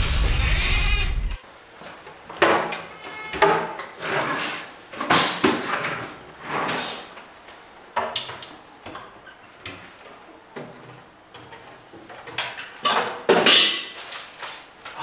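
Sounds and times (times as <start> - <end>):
drawer scraping: 3.6 - 7.2.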